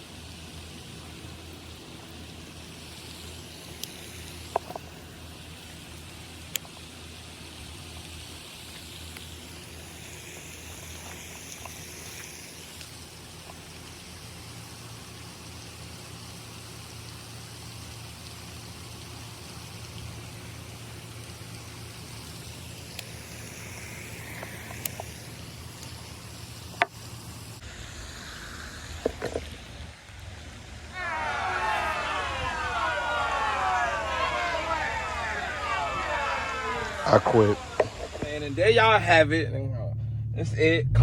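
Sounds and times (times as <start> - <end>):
faint hiss: 0.0 - 39.3
small clicks: 22.8 - 27.1.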